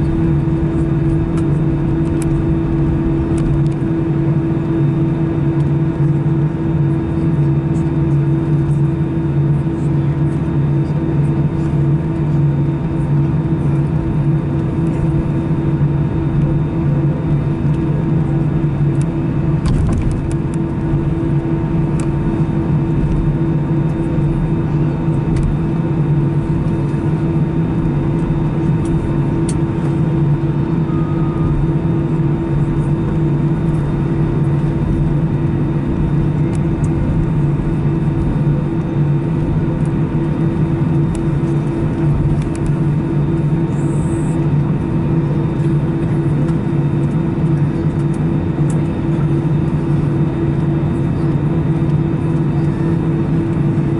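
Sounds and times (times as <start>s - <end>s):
aircraft cabin hum: 0.0s - 53.9s.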